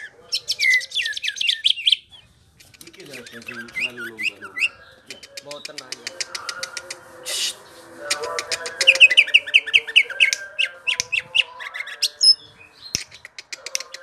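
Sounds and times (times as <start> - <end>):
bird singing whistled notes: 0.4 - 2.2, 8.8 - 13.3
high bird chips: 0.4 - 14.0.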